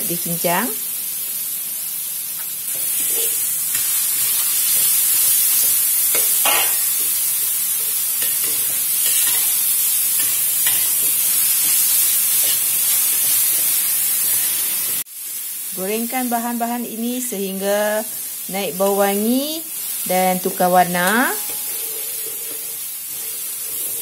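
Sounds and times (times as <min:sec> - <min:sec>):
food sizzling in hot oil: 0:00.0 - 0:24.0
metal spatula scraping wok: 0:02.7 - 0:07.0, 0:08.2 - 0:13.8, 0:21.0 - 0:24.0.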